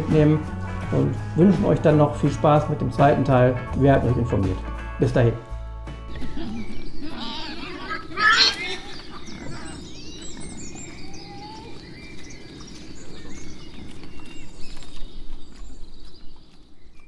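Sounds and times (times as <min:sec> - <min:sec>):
small birds chirping: 0:06.1 - 0:17.0.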